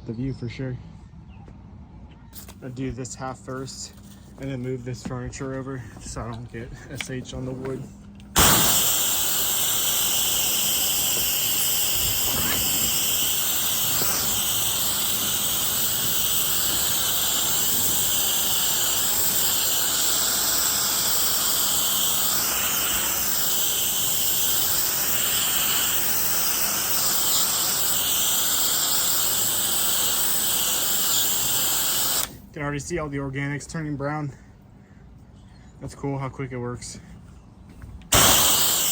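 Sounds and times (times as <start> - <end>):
spray wand hissing: 8.4 - 32.4, 38.1 - 38.9.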